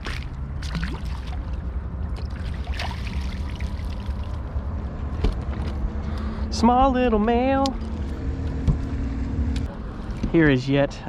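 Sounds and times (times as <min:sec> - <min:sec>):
water splashing and trickling: 0:00.0 - 0:04.7, 0:09.7 - 0:10.8.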